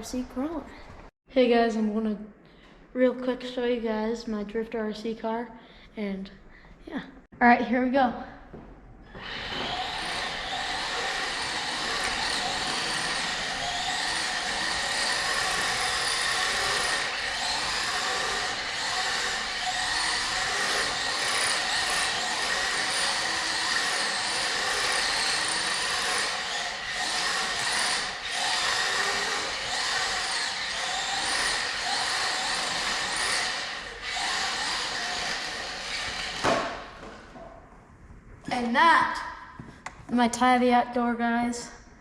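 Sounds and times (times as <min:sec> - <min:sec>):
toy car electric motor whine: 0:09.1 - 0:36.5.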